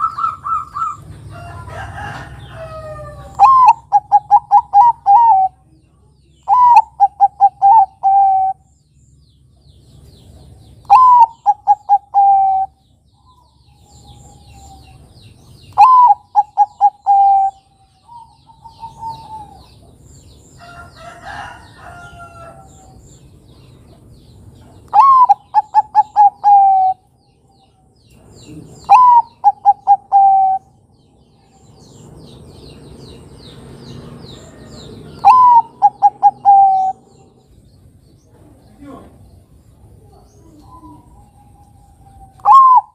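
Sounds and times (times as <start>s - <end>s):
dove cooing: 0.0s - 5.7s, 6.5s - 8.7s, 10.8s - 12.8s, 15.7s - 19.9s, 24.9s - 27.1s, 28.4s - 30.8s, 34.4s - 37.5s, 40.0s - 42.9s.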